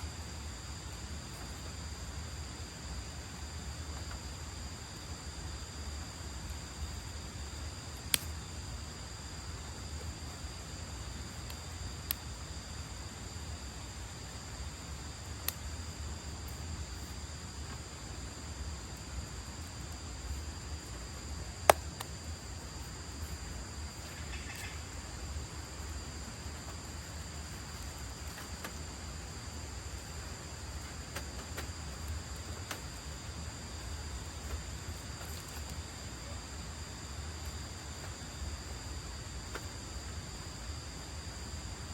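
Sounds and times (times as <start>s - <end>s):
crickets and night insects calling: 0.0s - 41.9s.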